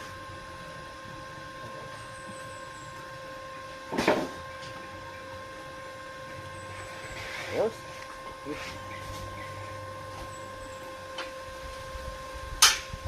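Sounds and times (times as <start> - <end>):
high-pitched electrical hum: 0.0 - 13.0.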